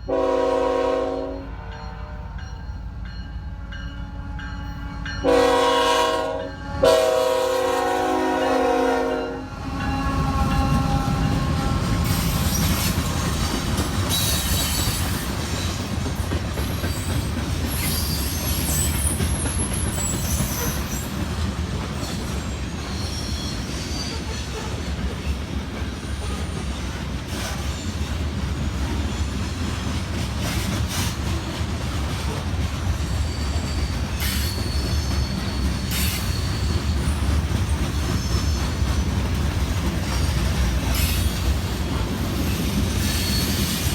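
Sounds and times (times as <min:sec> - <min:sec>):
freight train rumbling past: 0:00.0 - 0:43.9
high wheel squeals: 0:09.9 - 0:15.9, 0:16.7 - 0:21.3, 0:22.0 - 0:24.4, 0:33.0 - 0:37.3, 0:38.0 - 0:39.2, 0:42.4 - 0:43.9
wheels clicking over rail joints: 0:10.6 - 0:22.4.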